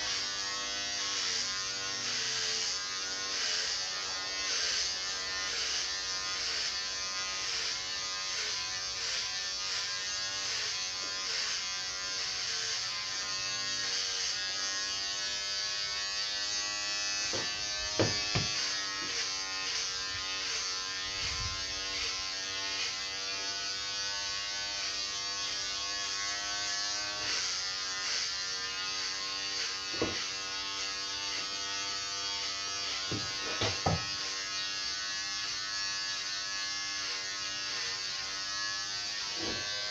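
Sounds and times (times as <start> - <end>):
electric clipper buzzing: 0.0 - 39.9.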